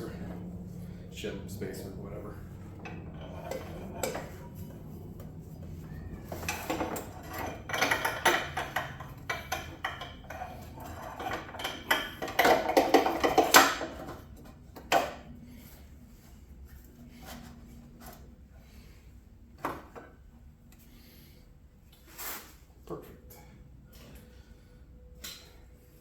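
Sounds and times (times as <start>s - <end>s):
metal parts clinking and scraping: 6.2s - 14.1s.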